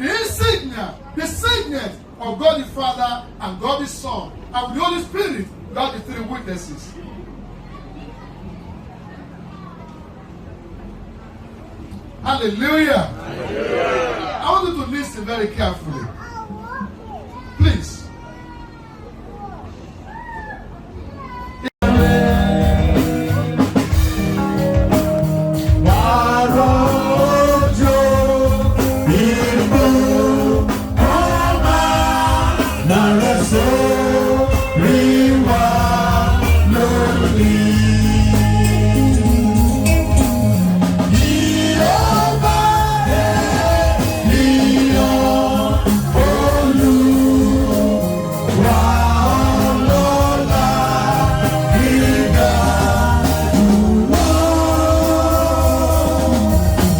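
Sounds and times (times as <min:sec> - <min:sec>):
gospel singing over a band: 0:21.8 - 0:56.9.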